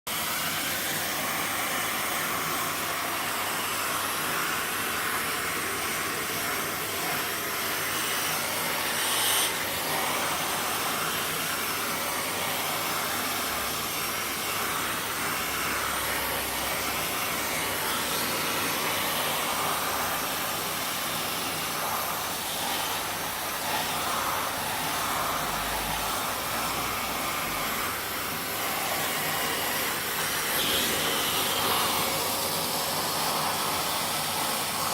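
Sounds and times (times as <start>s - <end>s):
vacuum cleaner running: 0.1s - 34.9s.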